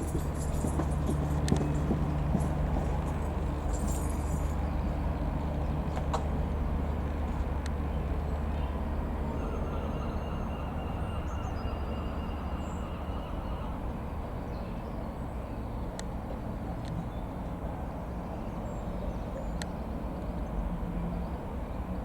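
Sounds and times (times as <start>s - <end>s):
propeller plane engine droning: 0.0s - 16.4s.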